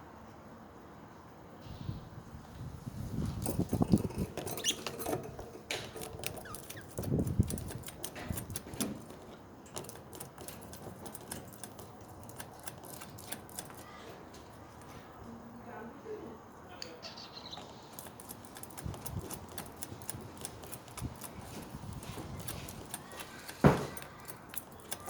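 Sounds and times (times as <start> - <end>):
budgerigars clicking and tapping: 5.7 - 14.0, 17.1 - 25.0
budgerigar squeaks: 6.2 - 7.8, 17.0 - 21.4.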